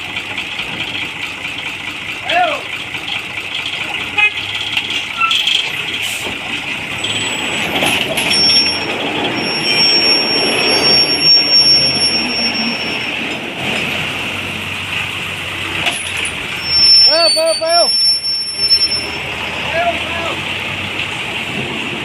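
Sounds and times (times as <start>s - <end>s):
truck diesel engine running: 0.0s - 22.0s
thin high whine: 8.2s - 13.4s, 16.5s - 19.2s.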